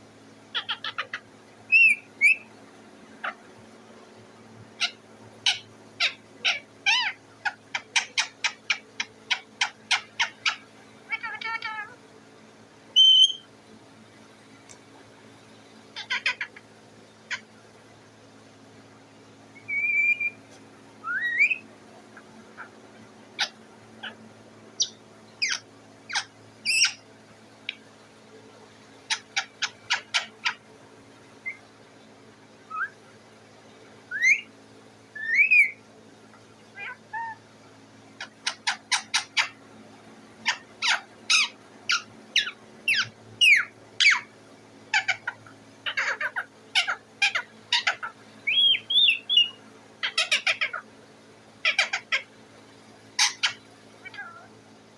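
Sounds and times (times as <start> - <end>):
parrot chirping and whistling: 1.7 - 2.5, 13.0 - 13.4, 19.6 - 20.4, 21.0 - 21.6, 24.8 - 27.0, 31.4 - 31.6, 32.7 - 33.0, 34.1 - 34.5, 35.2 - 35.8, 36.8 - 37.4, 40.4 - 44.3, 44.9 - 50.8, 51.6 - 52.2, 53.2 - 54.5.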